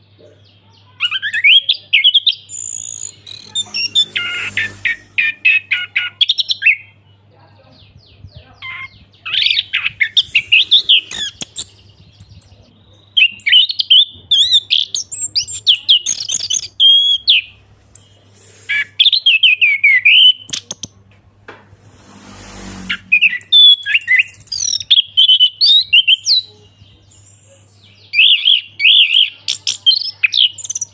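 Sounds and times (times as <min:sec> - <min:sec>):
short rush of noise: 0:03.3 - 0:05.5, 0:21.7 - 0:23.6.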